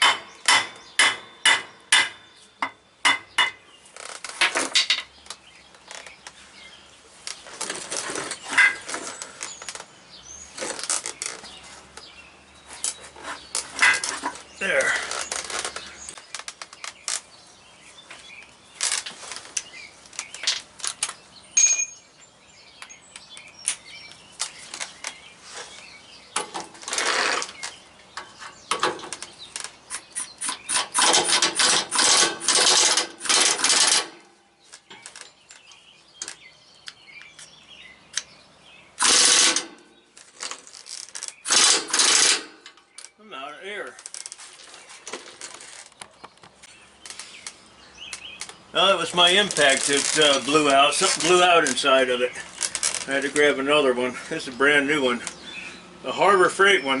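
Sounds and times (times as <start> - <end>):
metal tools clinking: 7.7 - 9.7, 12.8 - 14.4, 20.2 - 22.1
pneumatic impact wrench bursts: 26.9 - 27.6, 29.9 - 34.2, 39.0 - 39.8, 41.4 - 42.6.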